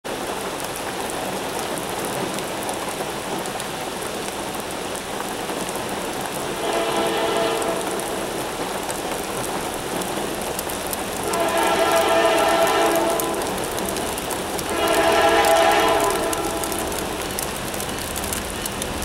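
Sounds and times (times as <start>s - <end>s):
heavy rain on pavement: 0.0s - 19.0s
train horn blast: 6.3s - 8.6s, 11.2s - 17.2s.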